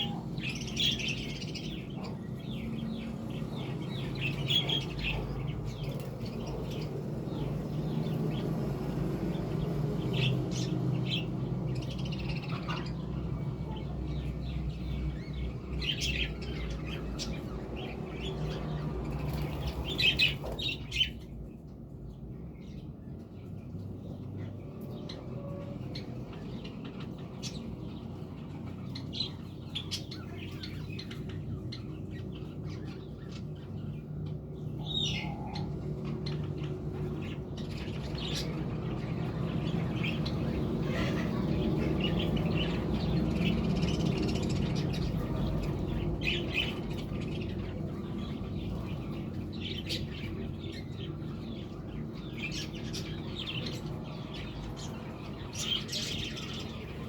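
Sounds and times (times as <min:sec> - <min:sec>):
low background hum: 0:00.0 - 0:57.0
budgerigars chirping: 0:34.7 - 0:57.0.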